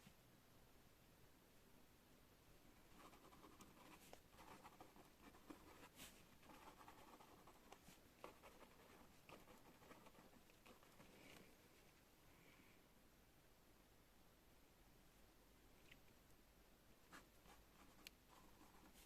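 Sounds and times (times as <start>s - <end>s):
pen scratching on paper: 3.0s - 11.1s.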